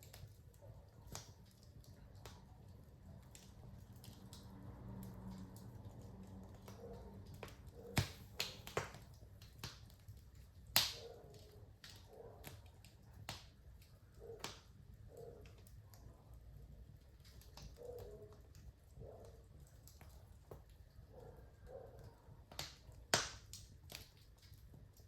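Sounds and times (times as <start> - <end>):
sharp pops from fire: 0.0 - 2.5, 6.5 - 14.8, 17.1 - 18.1, 22.4 - 25.0
fireplace fire crackling: 0.0 - 25.0.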